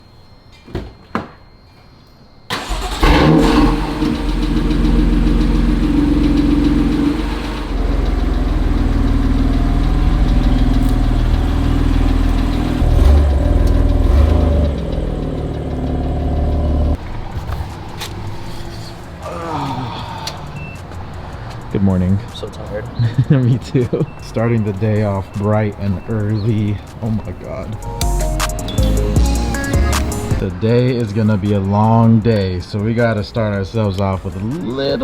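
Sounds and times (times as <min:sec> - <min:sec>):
car engine starting and running: 0:02.5 - 0:30.5.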